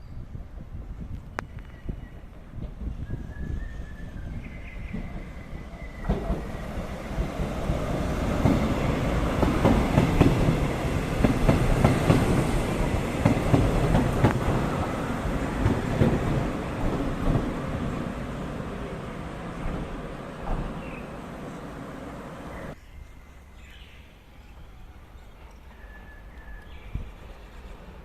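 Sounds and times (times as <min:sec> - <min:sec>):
train wheels clacking over rail joints: 0:06.0 - 0:14.7, 0:15.4 - 0:17.7.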